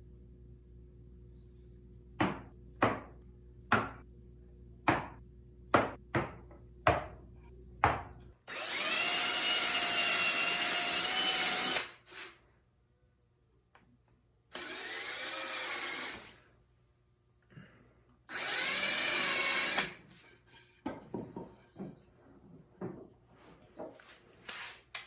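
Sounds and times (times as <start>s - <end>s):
power drill whining: 8.5s - 12.4s, 14.5s - 16.4s, 18.3s - 20.0s.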